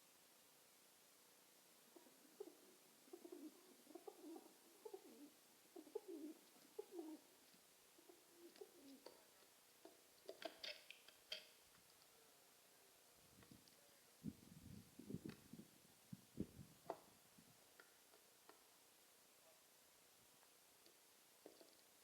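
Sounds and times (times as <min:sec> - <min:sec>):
pigeon cooing: 0:01.9 - 0:07.2, 0:08.0 - 0:09.2.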